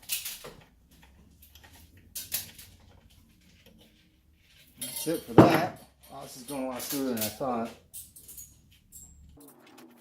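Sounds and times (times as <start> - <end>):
small metal clicks: 0.0 - 3.9.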